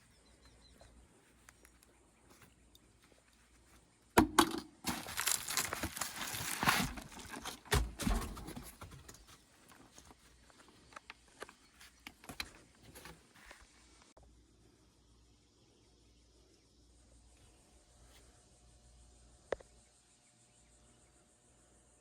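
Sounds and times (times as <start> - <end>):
handling rustling and scraping: 0.6 - 14.0.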